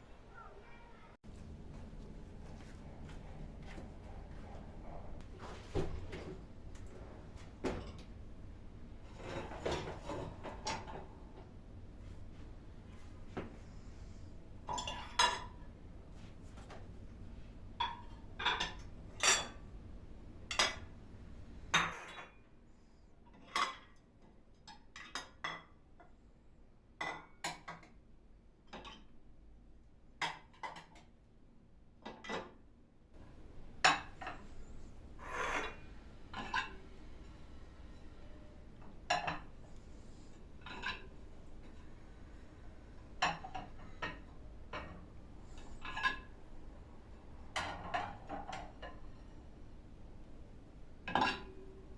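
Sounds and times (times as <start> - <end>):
dishes and cutlery clinking: 14.7 - 15.6, 33.8 - 36.9, 38.8 - 41.8, 51.1 - 51.8.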